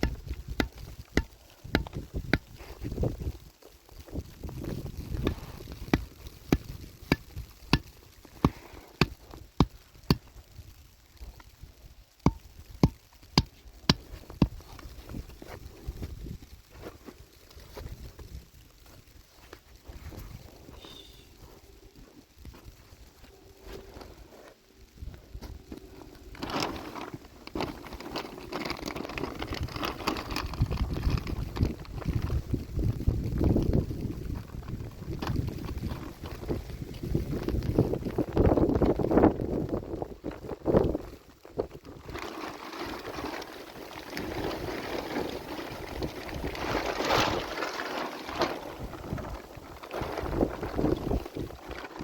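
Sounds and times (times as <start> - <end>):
hand tool striking: 0.0 - 2.5, 5.3 - 10.2, 12.3 - 14.6
wind buffeting microphone: 0.0 - 3.5, 4.1 - 7.8, 29.1 - 42.2, 48.5 - 52.0
rustling and crackling: 0.0 - 52.0.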